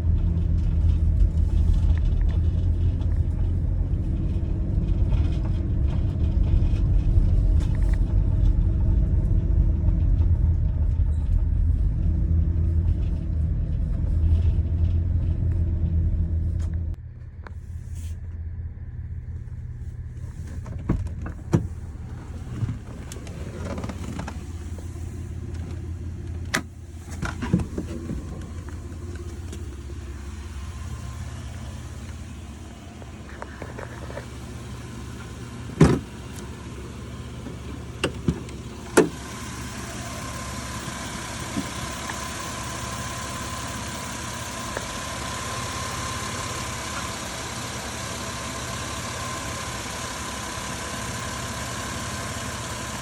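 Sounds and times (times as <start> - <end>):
car engine humming: 0.0 - 53.0
whine and hiss: 21.5 - 53.0.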